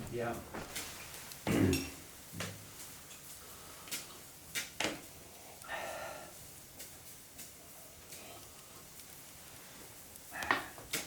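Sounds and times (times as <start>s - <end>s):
sharp clicks and light knocks: 3.9s - 5.1s.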